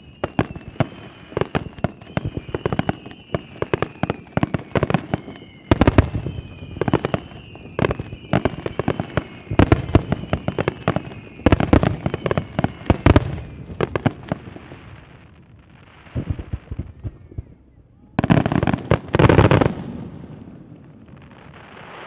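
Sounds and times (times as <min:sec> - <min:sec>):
high falling whistling tone: 0:00.0 - 0:13.8
fireworks bangs and crackles: 0:00.0 - 0:22.0.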